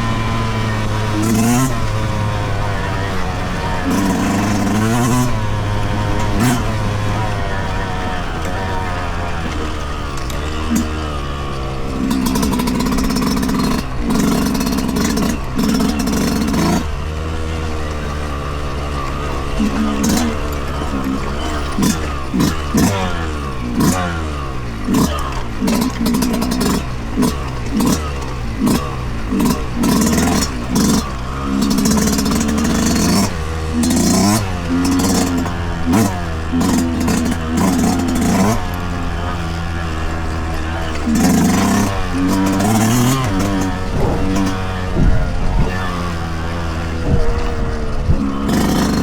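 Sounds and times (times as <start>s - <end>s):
dirt bike engine revving: 0.0s - 49.0s
short clatters: 0.0s - 49.0s.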